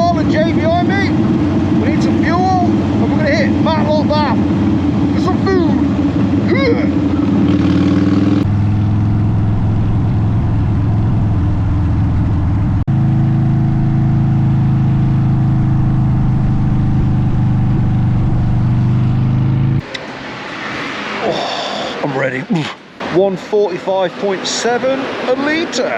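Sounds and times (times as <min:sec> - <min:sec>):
motorcycle engine running steadily: 0:00.0 - 0:19.8.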